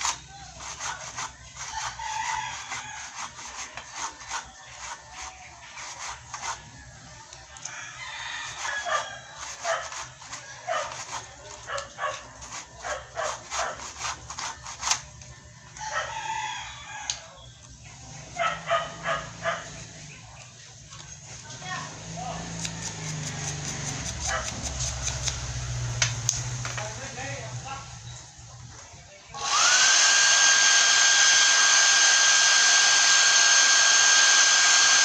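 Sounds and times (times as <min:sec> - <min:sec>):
rooster crowing: 0:01.7 - 0:03.6, 0:07.6 - 0:09.7, 0:15.8 - 0:17.4, 0:22.3 - 0:24.4.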